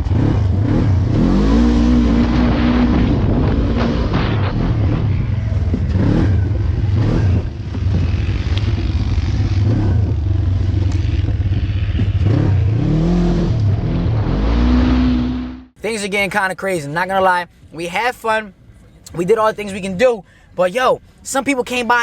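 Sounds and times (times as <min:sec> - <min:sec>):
vehicle engine revving: 0:00.0 - 0:15.8.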